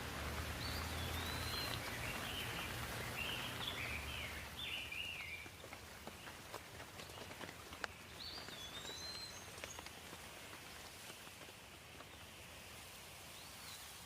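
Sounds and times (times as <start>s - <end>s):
light rain with dripping drops: 0.0s - 14.0s
bird whistling calls: 0.6s - 5.4s, 8.2s - 9.8s.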